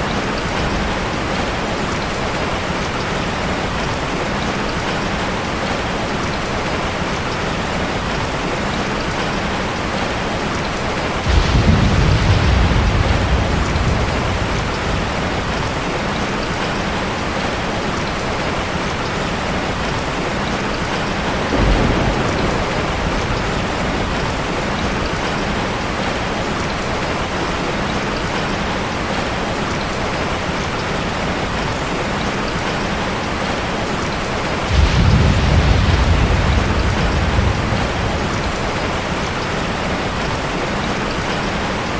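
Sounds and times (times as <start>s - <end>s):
heavy rain: 0.0s - 41.9s
thunder rumbling: 11.0s - 17.5s, 20.8s - 26.1s, 34.5s - 41.4s.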